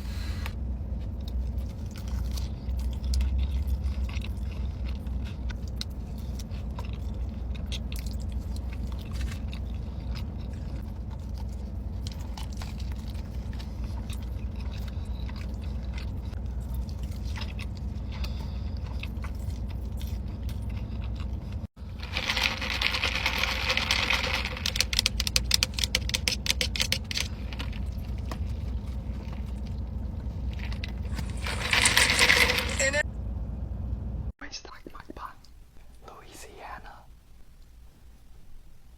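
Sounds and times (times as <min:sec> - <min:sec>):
low hum: 0:00.0 - 0:36.2
chewing with wet crunches: 0:00.9 - 0:31.5.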